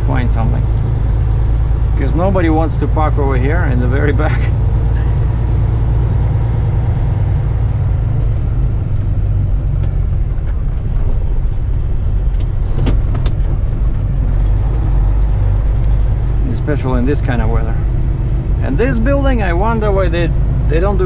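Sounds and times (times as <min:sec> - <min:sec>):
truck diesel engine rumbling: 0:00.0 - 0:21.0.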